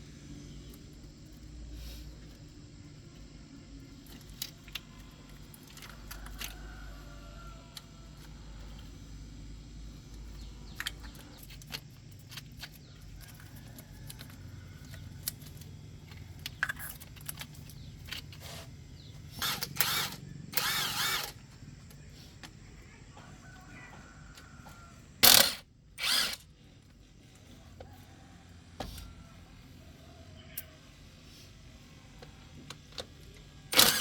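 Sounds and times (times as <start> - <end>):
low steady hum: 0.0 - 34.0
handheld power tool bursts: 19.4 - 21.4, 25.2 - 26.4, 33.7 - 34.0
tools clicking and clinking: 25.2 - 26.4, 33.7 - 34.0.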